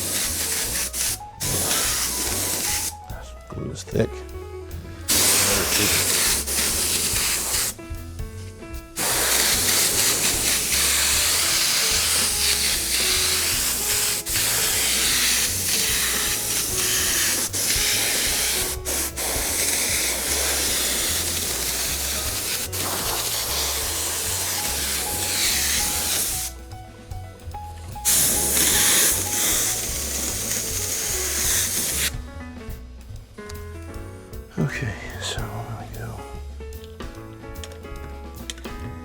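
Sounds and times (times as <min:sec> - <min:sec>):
spray glue hissing: 0:00.0 - 0:03.2, 0:05.1 - 0:07.9, 0:09.0 - 0:26.7, 0:27.9 - 0:32.2.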